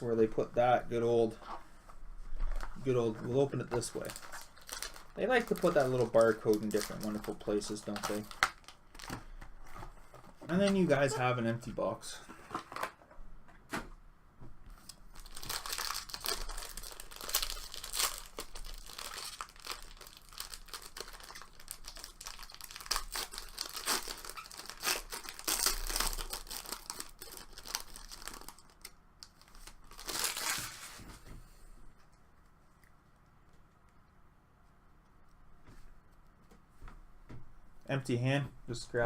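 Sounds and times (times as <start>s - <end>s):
plastic packaging crinkling and tearing: 2.5s - 11.2s, 14.9s - 31.2s.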